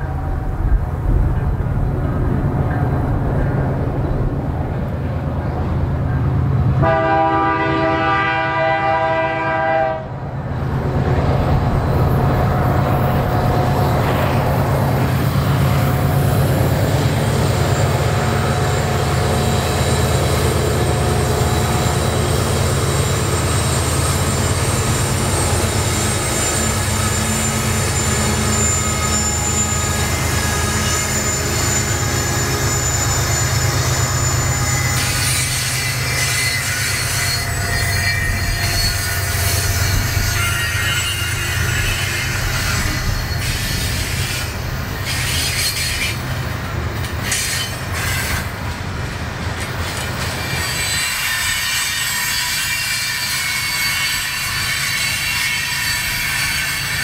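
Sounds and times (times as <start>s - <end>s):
freight train rumbling past: 0.0s - 57.0s
train air horn chord: 6.8s - 10.1s
high wheel squeal: 12.2s - 48.6s, 49.6s - 57.0s.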